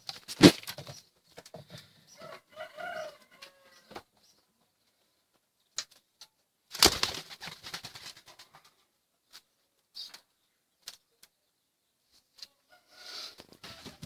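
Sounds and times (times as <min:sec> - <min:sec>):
pigeons wings flapping: 0:06.7 - 0:08.4.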